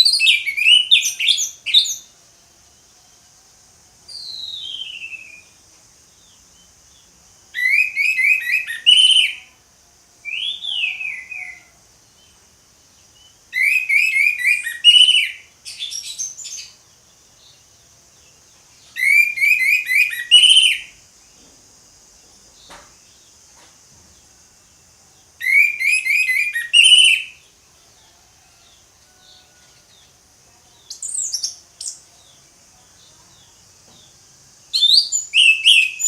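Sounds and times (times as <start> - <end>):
thrush singing whistled notes: 0.0 - 2.2, 4.1 - 5.6, 6.2 - 9.6, 10.2 - 12.4, 13.1 - 16.8, 18.8 - 21.0, 25.3 - 27.6, 34.6 - 36.0
faint high hiss: 0.0 - 36.0.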